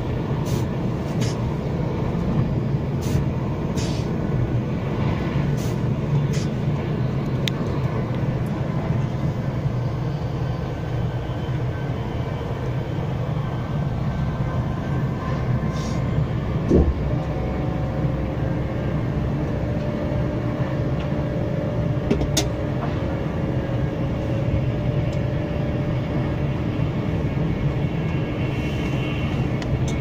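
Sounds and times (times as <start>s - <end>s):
train running at speed: 0.0s - 30.0s.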